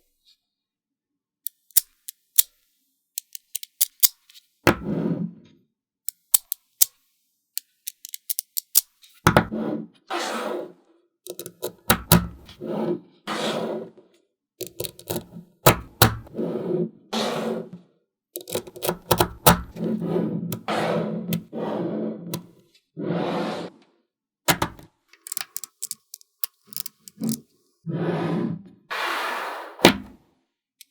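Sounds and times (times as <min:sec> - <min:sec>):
magnetic balls clicking together: 0:03.2 - 0:04.2, 0:06.1 - 0:07.0, 0:07.6 - 0:08.9, 0:25.2 - 0:27.4.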